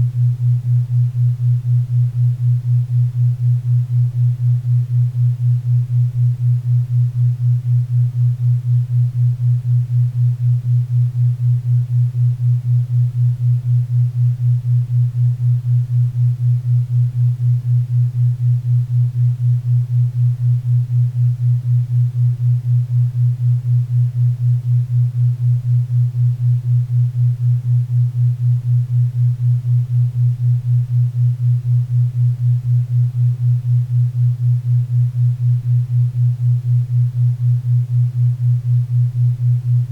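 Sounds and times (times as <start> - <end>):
low pulsing hum: 0.0 - 39.9.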